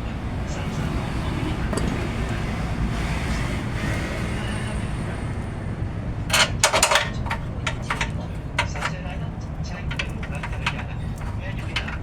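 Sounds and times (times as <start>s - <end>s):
hand tools knocking and clicking: 6.3s - 12.0s.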